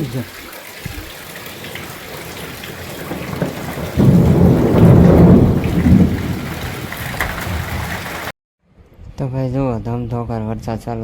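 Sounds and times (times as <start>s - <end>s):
rain falling: 0.0s - 8.3s
thunder rumble: 1.5s - 8.3s.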